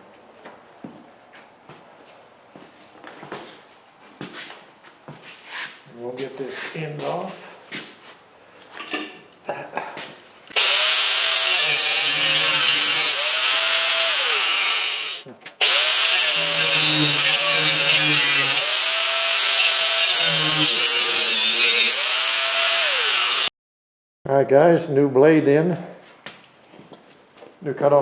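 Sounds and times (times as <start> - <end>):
abrasive cutoff wheel cutting copper: 10.5 - 23.5.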